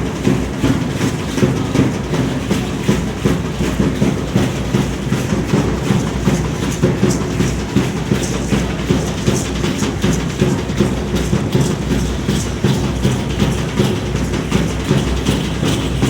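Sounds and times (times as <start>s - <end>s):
pounding drumming: 0.0s - 16.0s.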